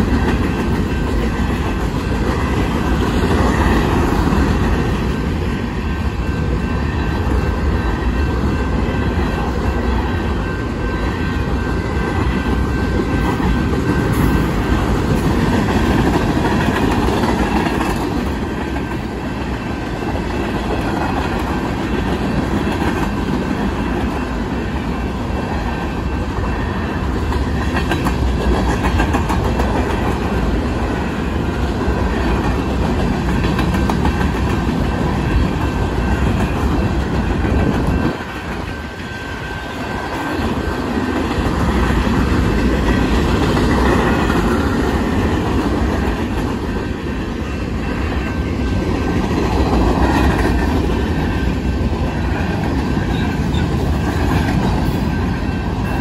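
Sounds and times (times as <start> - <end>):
steel wheels rumbling on rails: 0.0 - 56.0.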